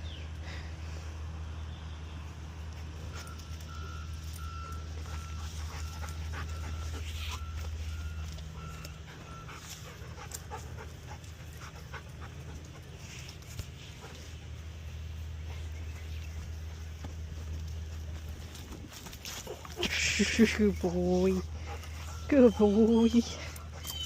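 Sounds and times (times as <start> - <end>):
low engine hum: 0.0 - 24.0
reversing alarm beeping: 3.1 - 10.0
dog panting: 4.5 - 14.8, 17.8 - 24.0.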